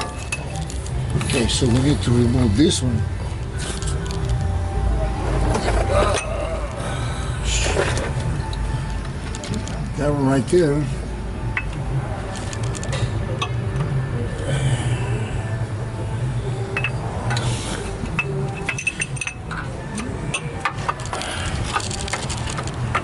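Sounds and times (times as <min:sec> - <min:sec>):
steady low hum: 0:00.0 - 0:23.0
hand tools tapping metal: 0:16.8 - 0:23.0.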